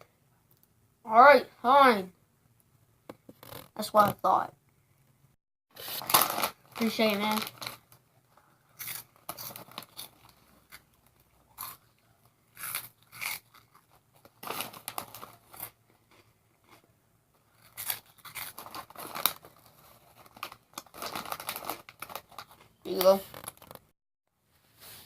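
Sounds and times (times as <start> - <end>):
crunching and chewing snack: 8.6 - 23.8.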